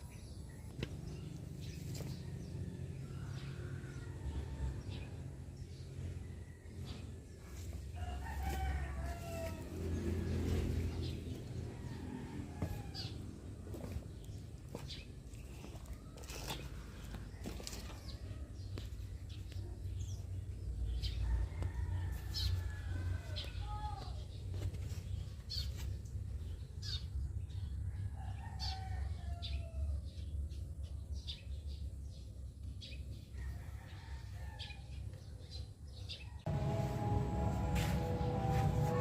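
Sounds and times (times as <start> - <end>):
steady low rumble: 36.5 - 39.0.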